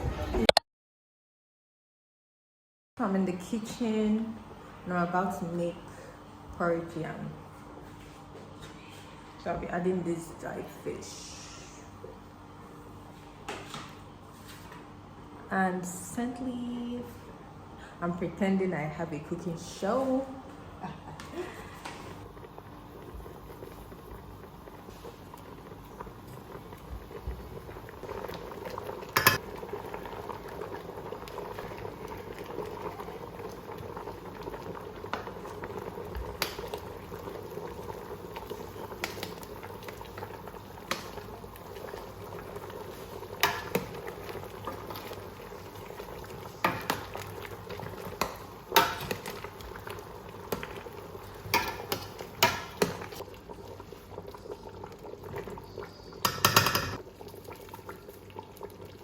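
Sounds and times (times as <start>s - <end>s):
porridge bubbling: 21.4s - 59.0s.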